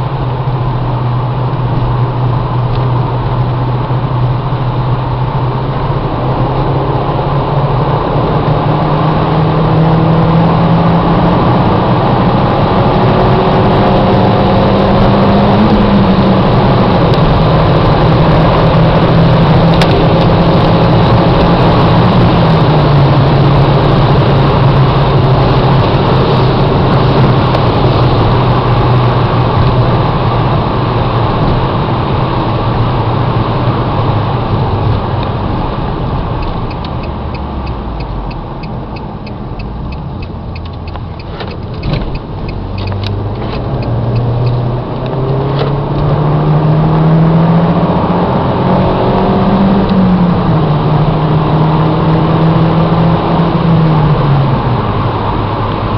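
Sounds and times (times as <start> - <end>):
car engine at speed: 0.0 - 55.9
thump: 41.4 - 42.1.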